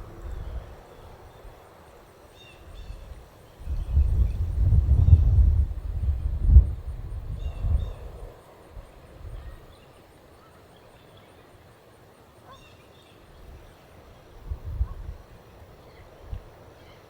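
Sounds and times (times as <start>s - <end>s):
wind gusting on microphone: 2.7s - 9.7s, 14.4s - 15.3s.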